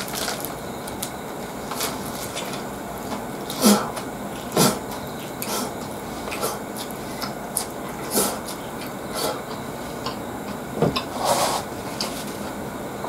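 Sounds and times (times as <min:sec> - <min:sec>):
crisp lettuce crunches: 0:00.0 - 0:02.6.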